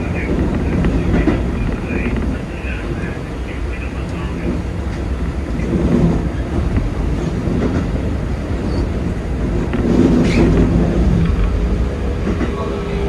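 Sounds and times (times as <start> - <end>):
train wheels rumbling over rails: 0.0 - 13.0.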